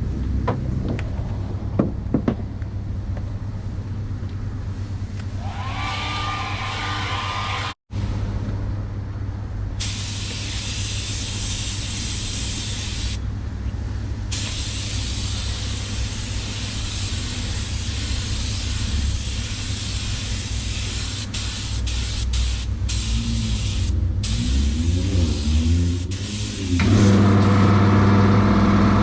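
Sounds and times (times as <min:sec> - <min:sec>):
constant low rumble: 0:00.0 - 0:05.4, 0:07.9 - 0:24.4
paint spray gun hissing: 0:09.8 - 0:13.2, 0:14.3 - 0:24.7, 0:26.0 - 0:27.7.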